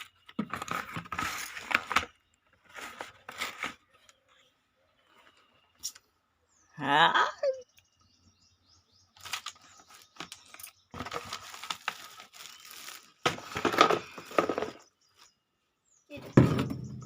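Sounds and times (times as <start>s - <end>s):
packaging rustling and crinkling: 0.0s - 4.2s, 9.2s - 14.8s.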